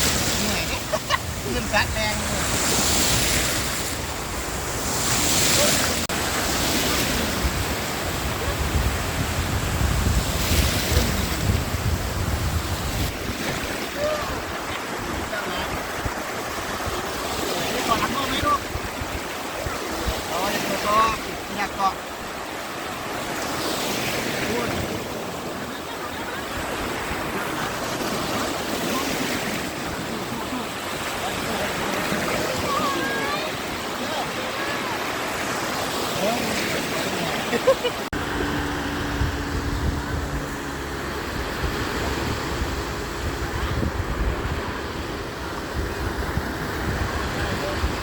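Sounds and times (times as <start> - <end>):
wind on microphone: 0.0 - 22.4, 36.8 - 48.0
waves washing onto beach: 0.0 - 48.0.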